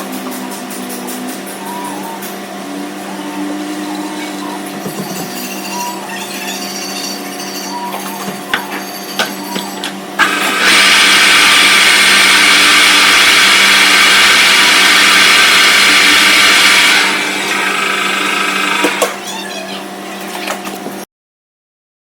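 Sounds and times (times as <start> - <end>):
harsh metal cutting noise: 10.1 - 19.2
metal lathe humming: 10.2 - 19.2.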